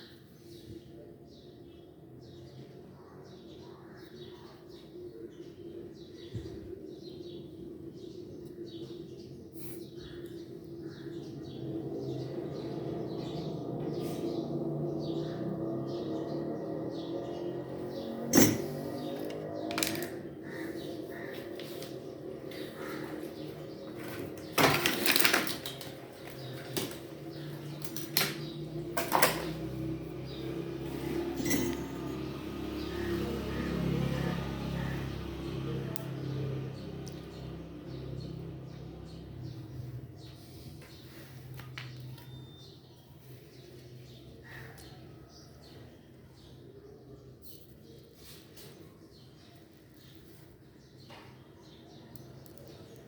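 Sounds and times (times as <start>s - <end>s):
birds chirping: 0.0s - 53.0s
small hard objects clattering: 19.2s - 20.2s, 24.0s - 27.0s.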